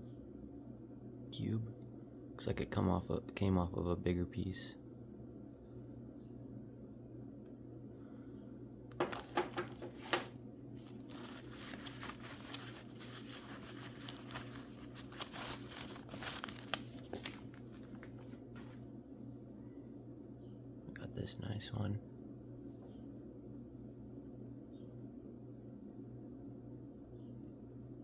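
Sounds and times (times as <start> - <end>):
wrapping crinkling and tearing: 9.0 - 18.7.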